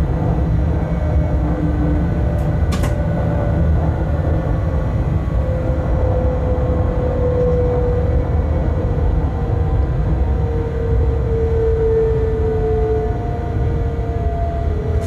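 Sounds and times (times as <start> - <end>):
train running gear rumbling on track: 0.0 - 11.7.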